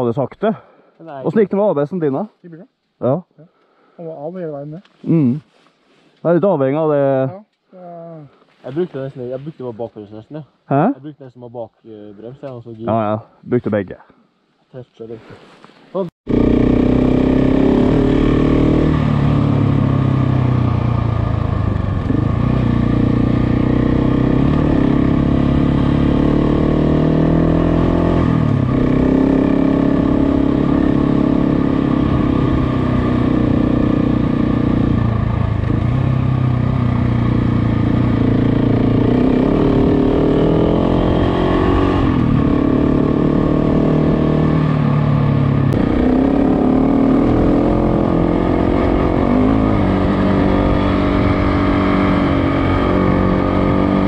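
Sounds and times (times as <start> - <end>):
motorcycle engine accelerating: 16.3 - 54.0.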